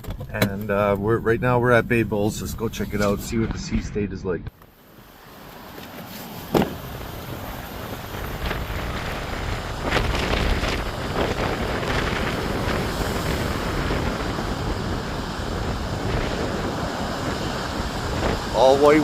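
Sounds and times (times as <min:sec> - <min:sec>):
heavy surf churning: 0:04.8 - 0:19.0
storm wind buffeting microphone: 0:06.6 - 0:19.0.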